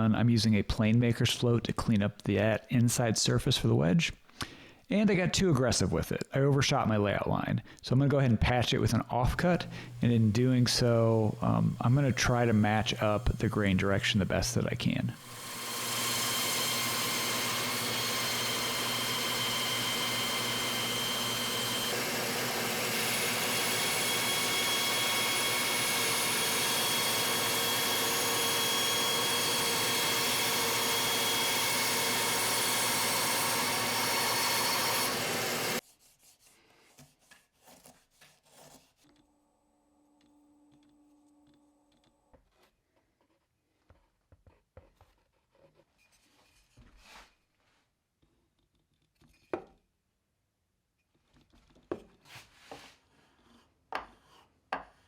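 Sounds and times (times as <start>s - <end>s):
power tool working wood: 9.4s - 35.8s.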